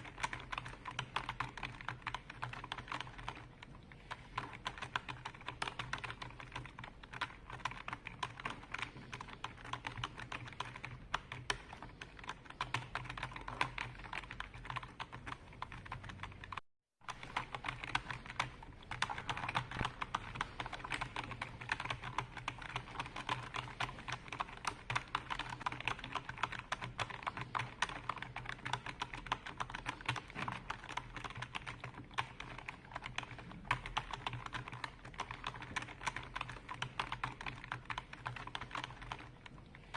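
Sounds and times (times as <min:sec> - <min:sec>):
fast typing on computer keyboard: 0:00.0 - 0:39.9.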